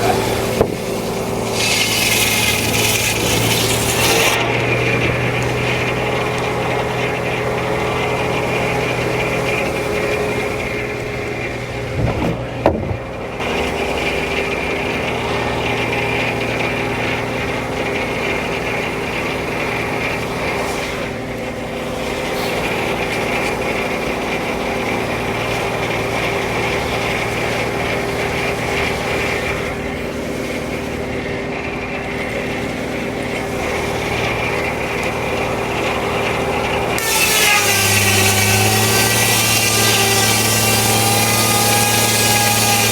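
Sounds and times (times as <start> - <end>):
sawmill machine hum: 0.0 - 42.9
clatter of knocks: 11.9 - 13.1.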